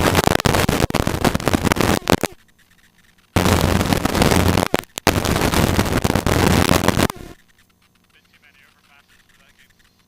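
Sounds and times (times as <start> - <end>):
helicopter rotor and engine noise: 0.0 - 10.0.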